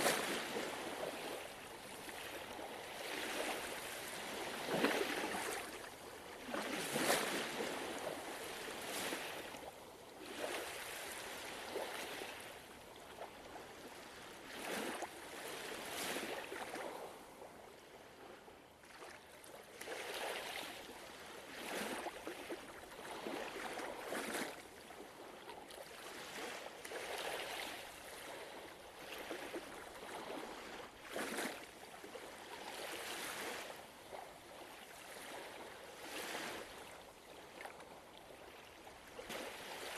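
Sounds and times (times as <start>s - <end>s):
soft water splashes: 0.0s - 17.5s
ocean waves lapping on shore: 0.0s - 39.9s.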